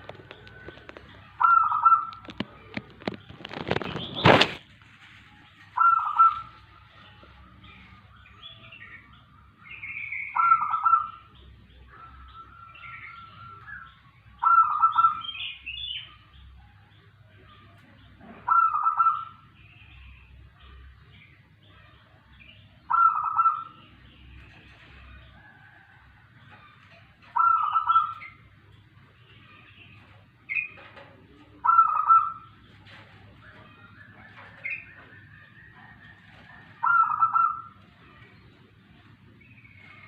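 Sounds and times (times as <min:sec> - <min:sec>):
dove cooing: 0:00.0 - 0:04.6, 0:05.5 - 0:08.5, 0:09.4 - 0:13.7, 0:14.3 - 0:15.6, 0:18.2 - 0:19.6, 0:22.8 - 0:40.0
small birds chirping: 0:00.0 - 0:40.0.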